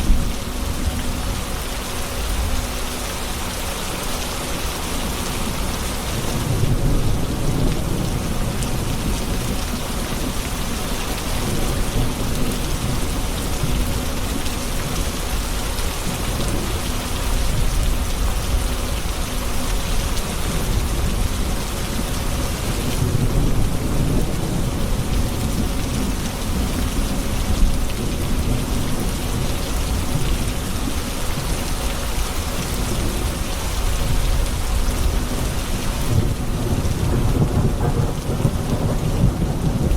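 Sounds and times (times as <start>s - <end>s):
heavy rain: 0.0s - 39.9s
rolling thunder: 6.1s - 13.9s, 33.8s - 39.9s.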